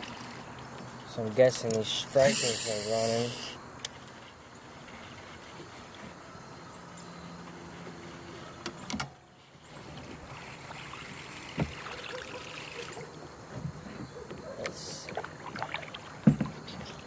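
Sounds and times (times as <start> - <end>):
water sloshing around kayak: 9.6 - 17.0
knocks on kayak hull: 16.2 - 16.6.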